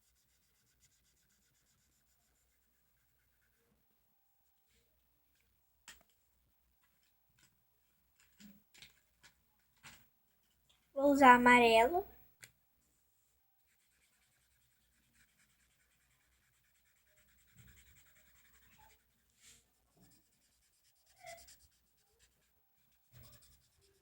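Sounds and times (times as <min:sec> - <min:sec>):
felt-tip pen scratching on paper: 0:00.0 - 0:03.7, 0:13.7 - 0:24.0.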